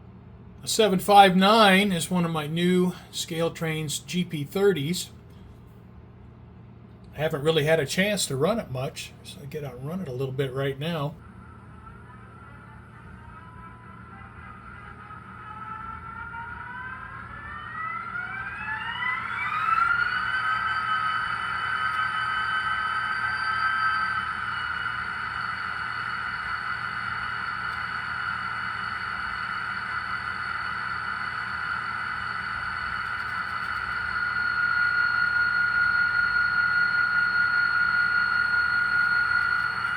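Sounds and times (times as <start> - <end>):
model train motor whine: 11.8 - 39.9.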